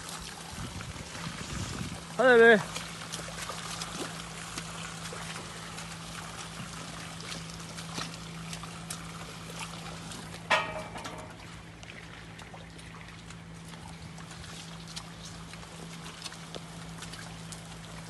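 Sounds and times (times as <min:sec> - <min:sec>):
steady low hum: 0:00.0 - 0:18.0
water pouring and trickling: 0:00.0 - 0:18.0.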